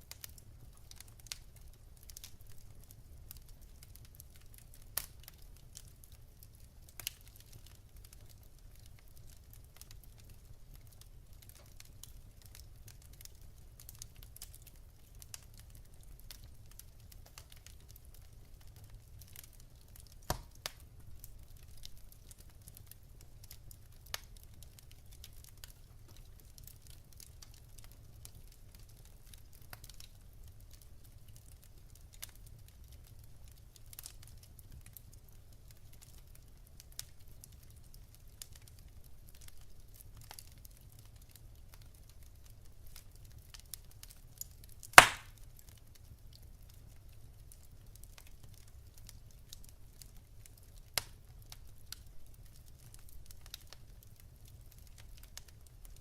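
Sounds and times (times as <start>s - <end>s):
burning logs crackling and snapping: 0.0s - 56.0s
loud fire pops: 20.2s - 20.8s, 44.9s - 45.4s.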